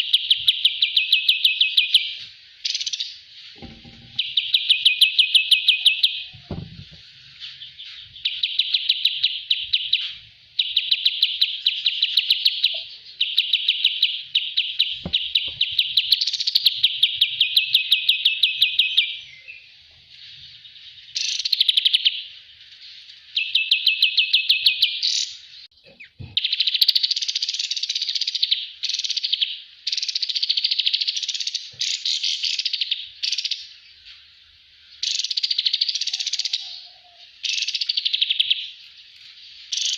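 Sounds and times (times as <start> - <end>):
bird rattling chirp trills: 0.0 - 18.8.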